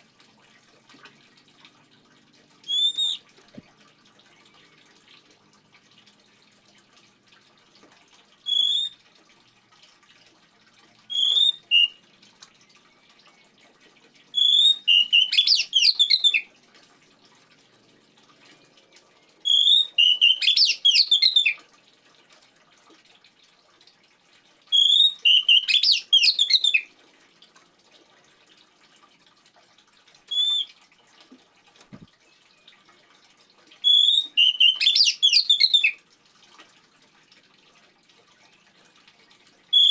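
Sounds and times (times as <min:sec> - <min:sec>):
faint trickling water: 0:00.0 - 0:39.9
bird singing whistled phrases: 0:02.7 - 0:03.2, 0:08.5 - 0:09.0, 0:11.1 - 0:12.0, 0:14.4 - 0:16.5, 0:19.4 - 0:21.6, 0:24.8 - 0:26.9, 0:30.3 - 0:30.7, 0:33.8 - 0:36.0.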